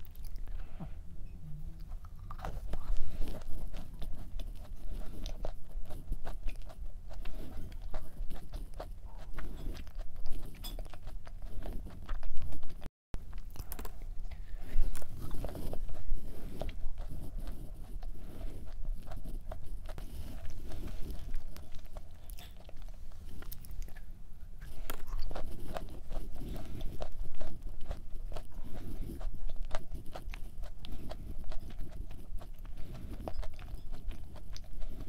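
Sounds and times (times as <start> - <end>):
chewing with small crunches: 0.0 - 35.0.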